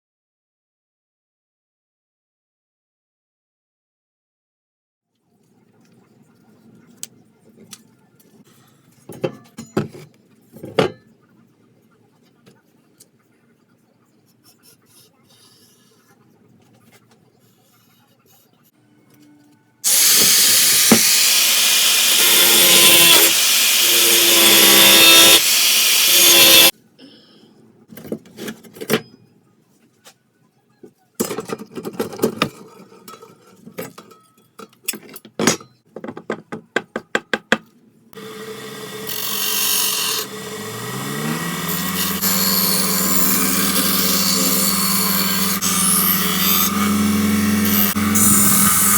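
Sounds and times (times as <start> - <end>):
abrasive rasping on metal: 19.9 - 26.7
power tool motor humming: 19.9 - 26.7, 38.2 - 48.9.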